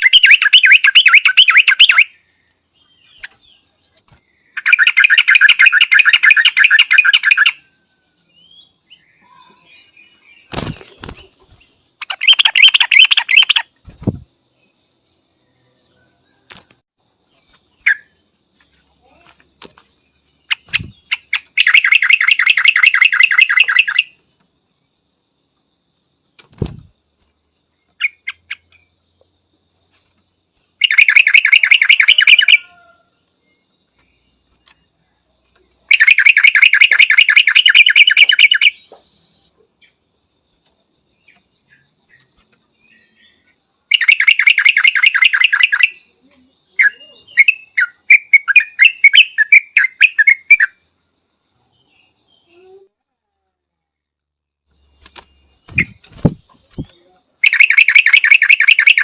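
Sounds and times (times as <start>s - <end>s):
bulbul calling: 0.0s - 2.2s, 4.4s - 7.7s, 8.5s - 14.2s, 20.4s - 24.2s, 30.8s - 32.9s, 35.8s - 39.6s, 42.9s - 50.8s, 55.1s - 59.0s.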